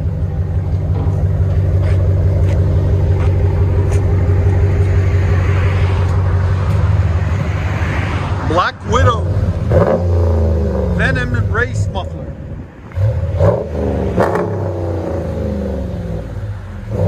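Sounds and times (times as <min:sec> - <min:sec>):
engine idling exhaust rumble: 0:00.0 - 0:17.0.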